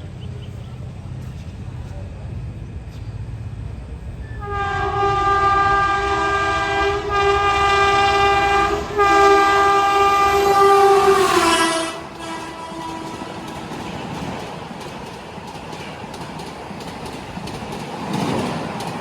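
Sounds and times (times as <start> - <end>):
train rumbling past: 0.0 - 19.0
train horn blast: 4.2 - 14.3.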